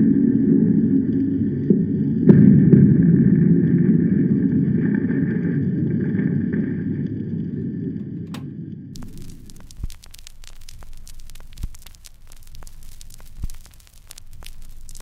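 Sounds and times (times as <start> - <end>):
record surface hiss and hum: 8.0 - 15.0.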